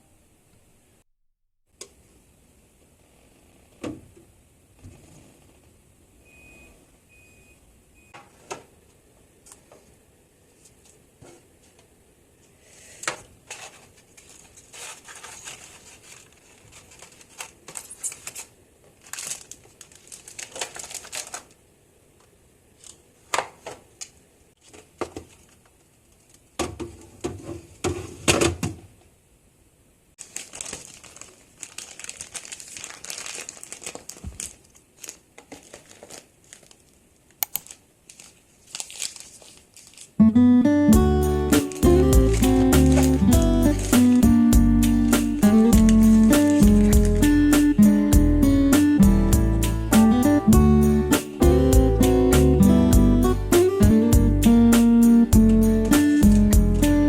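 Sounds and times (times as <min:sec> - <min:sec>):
plastic packaging crinkling: 0:13.4 - 0:21.6, 0:30.2 - 0:40.2, 0:41.2 - 0:47.7.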